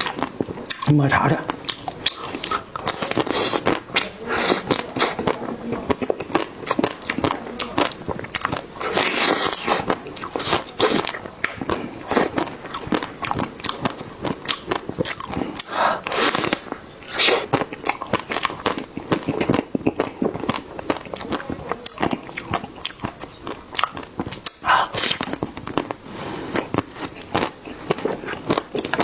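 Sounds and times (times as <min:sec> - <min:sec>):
person chewing crunchy food: 0:00.0 - 0:29.0.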